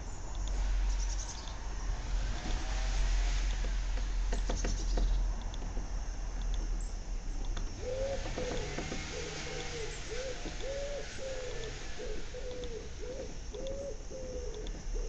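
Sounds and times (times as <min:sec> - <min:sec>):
faint steady hiss: 0:00.0 - 0:15.0
bird calling with low notes: 0:07.8 - 0:15.0.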